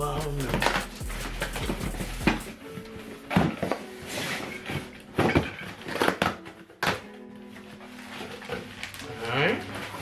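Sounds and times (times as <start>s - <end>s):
packaging rustling: 0.5s - 10.0s
packaging knocks and clunks: 4.7s - 7.2s.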